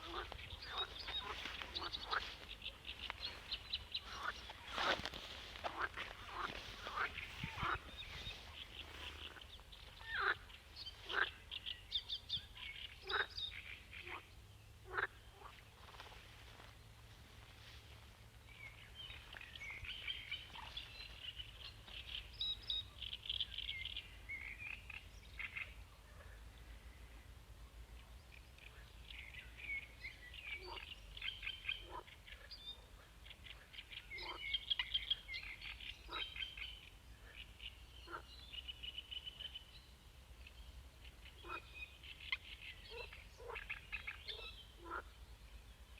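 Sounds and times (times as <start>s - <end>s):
frogs calling: 0.0s - 11.6s, 13.0s - 13.4s, 14.8s - 16.7s
birds chirping: 0.0s - 14.2s.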